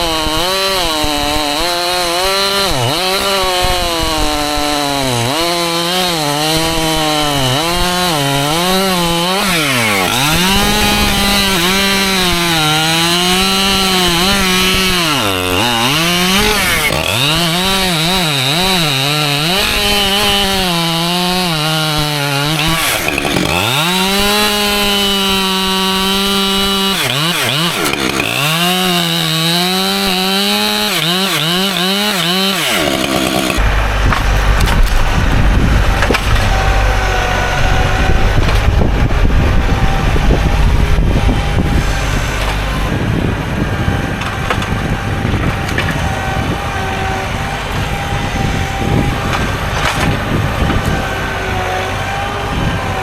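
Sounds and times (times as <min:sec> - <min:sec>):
chainsaw cutting wood: 0:00.0 - 0:53.0
low rumble: 0:33.6 - 0:44.3.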